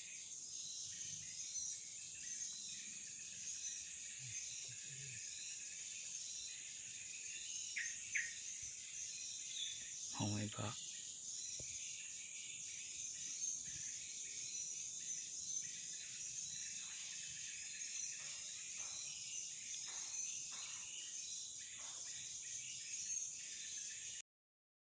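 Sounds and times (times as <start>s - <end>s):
insects droning: 0.0s - 24.2s.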